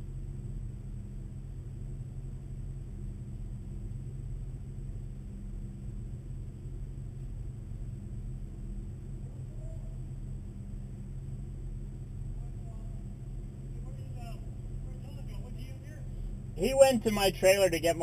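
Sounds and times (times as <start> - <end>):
car engine idling: 8.8 - 18.0.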